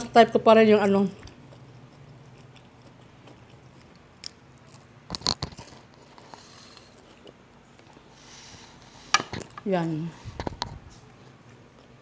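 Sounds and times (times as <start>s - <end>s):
person chewing food: 1.1s - 9.6s.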